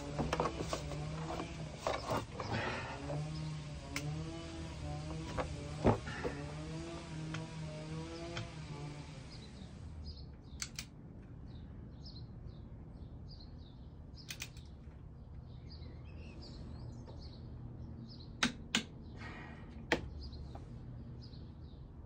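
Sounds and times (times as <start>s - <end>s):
small birds chirping: 0.0s - 7.0s, 7.8s - 22.0s
sharp tool clicks: 10.5s - 11.0s, 14.2s - 14.7s, 18.4s - 18.9s.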